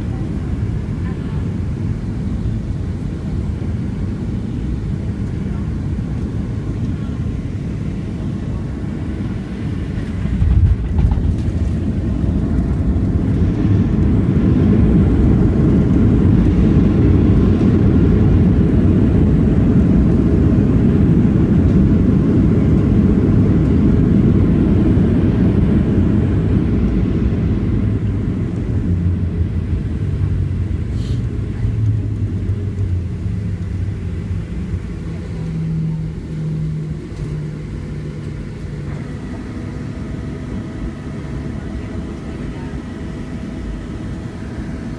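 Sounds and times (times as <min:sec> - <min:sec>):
jet engines humming: 0:00.0 - 0:44.9
reverse thrust rumble: 0:09.9 - 0:20.2.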